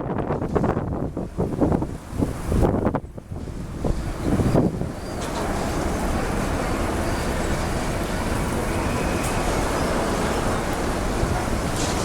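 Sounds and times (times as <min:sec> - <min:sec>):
wind buffeting microphone: 0:00.0 - 0:12.0
jet engines roaring: 0:04.5 - 0:12.0.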